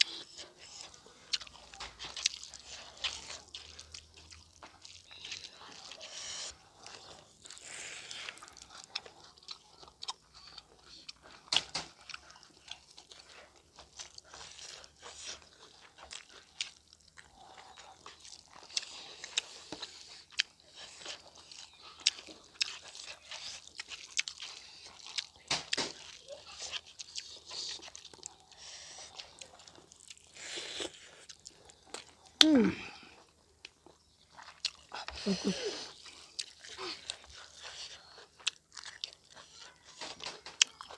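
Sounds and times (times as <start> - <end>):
person chewing and biting food: 0.0 - 40.9
mouth smacks: 32.4 - 33.1.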